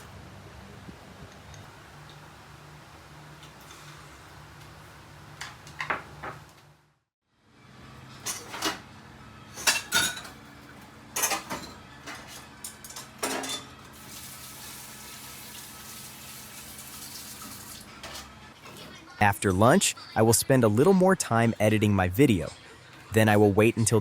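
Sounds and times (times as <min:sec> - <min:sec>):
dishes and cutlery clinking: 0:08.2 - 0:08.8, 0:09.6 - 0:10.5, 0:11.2 - 0:13.9.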